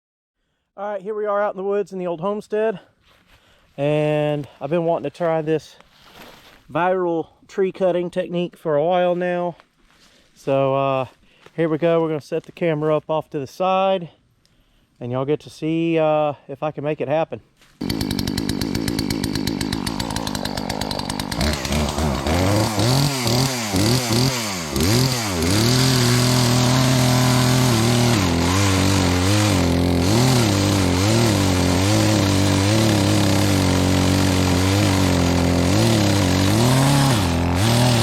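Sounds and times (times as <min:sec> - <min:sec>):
chainsaw idling and revving: 0:17.8 - 0:38.0.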